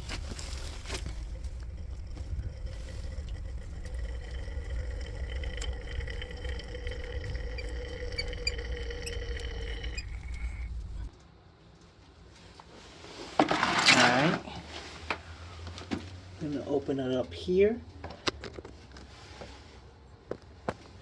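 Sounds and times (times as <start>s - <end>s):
hot water rushing from valve: 0.0s - 11.1s.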